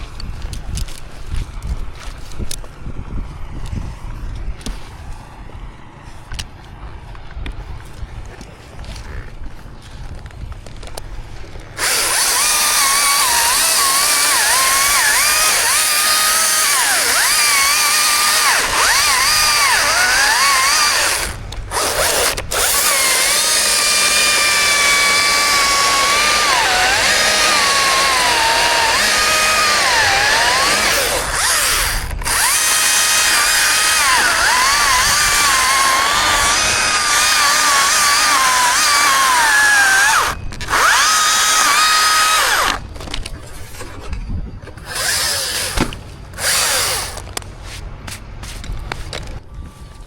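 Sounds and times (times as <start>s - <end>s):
chainsaw cutting wood: 11.6s - 43.2s, 44.7s - 47.4s.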